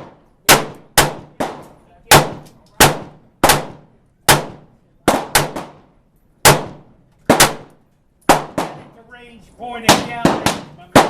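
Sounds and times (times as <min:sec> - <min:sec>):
gunshots echoing: 0:00.0 - 0:09.0, 0:09.8 - 0:11.0.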